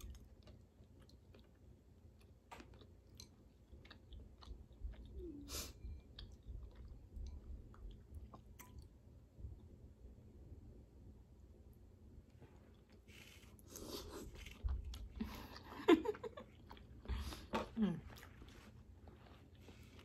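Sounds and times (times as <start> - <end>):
person chewing: 0.0 - 8.9, 12.5 - 20.0.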